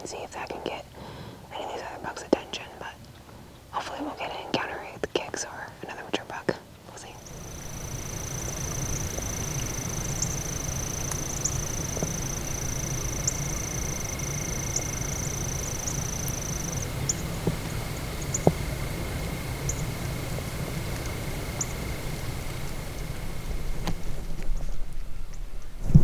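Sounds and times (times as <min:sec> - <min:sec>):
faint ticks and clicks: 0:00.0 - 0:19.9, 0:20.9 - 0:21.8
thin high steady tone: 0:07.0 - 0:23.8
low rumble: 0:07.1 - 0:26.0.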